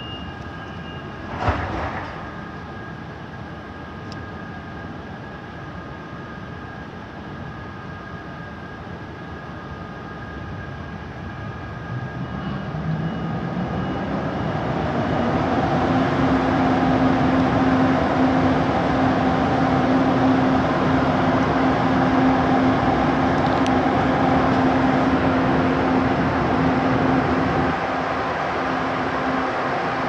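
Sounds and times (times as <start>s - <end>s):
train rumbling past: 0.0s - 3.8s, 10.9s - 30.0s
steady low hum: 14.1s - 30.0s.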